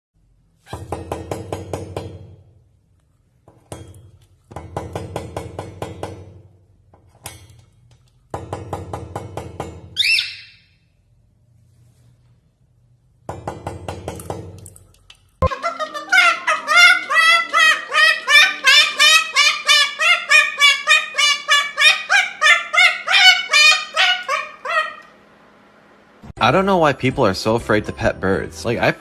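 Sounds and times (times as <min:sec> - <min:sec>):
parrot call: 0:10.0 - 0:10.8, 0:15.4 - 0:25.1.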